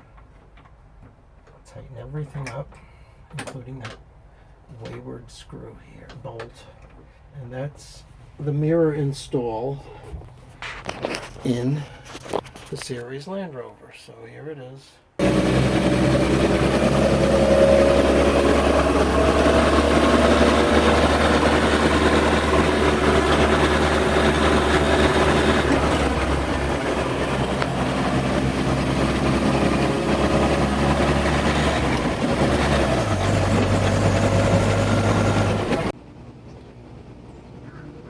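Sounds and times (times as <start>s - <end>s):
vehicle engine running: 15.2s - 38.0s.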